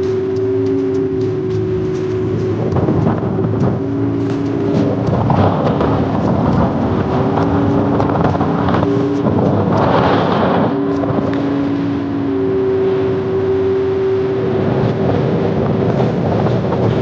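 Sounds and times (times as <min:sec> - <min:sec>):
motorboat engine running: 0:00.0 - 0:17.0
wind buffeting microphone: 0:00.0 - 0:17.0.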